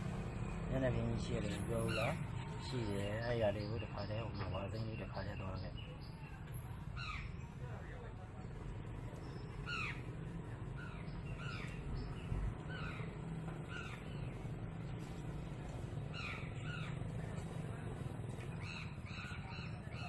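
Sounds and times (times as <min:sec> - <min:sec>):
birds calling in short bursts: 0:00.4 - 0:07.6, 0:09.2 - 0:20.0.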